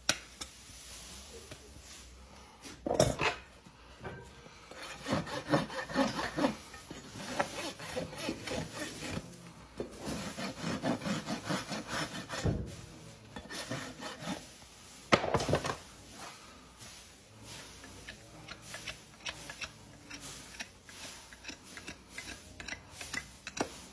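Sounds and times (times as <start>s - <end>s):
hand tool rasping on hoof: 4.7s - 12.4s, 13.4s - 14.5s, 17.8s - 23.9s.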